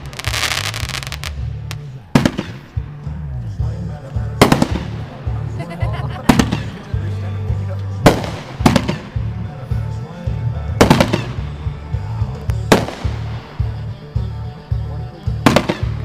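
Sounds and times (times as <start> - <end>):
firework bangs: 0.0 - 3.0, 4.4 - 5.4, 6.2 - 6.8, 8.0 - 9.4, 10.8 - 11.5, 12.7 - 13.8, 15.4 - 16.0
background music with steady beat: 0.0 - 16.0.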